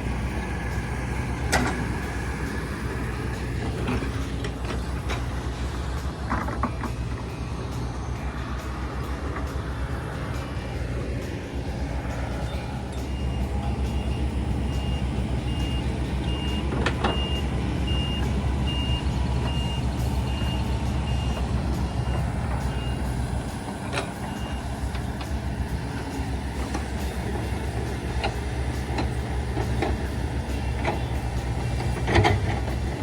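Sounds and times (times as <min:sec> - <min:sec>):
heavy diesel machine running: 0:00.0 - 0:33.0
backup alarm beeping: 0:12.4 - 0:25.3.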